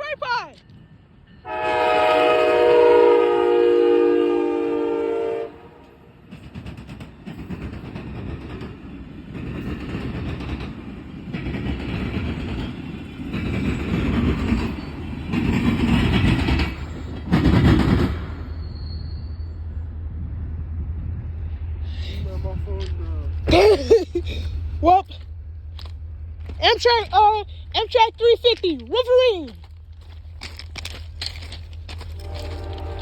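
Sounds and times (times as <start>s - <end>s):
train horn chord: 1.4s - 6.1s, 32.2s - 33.0s
train wheels clattering on rails: 5.8s - 19.1s, 22.7s - 33.0s.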